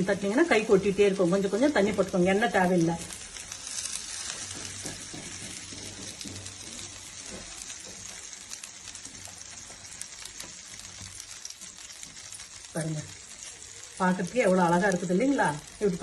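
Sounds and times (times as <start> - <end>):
dough sizzling on a hot griddle: 0.0 - 16.0
fingers patting dough: 0.3 - 11.2.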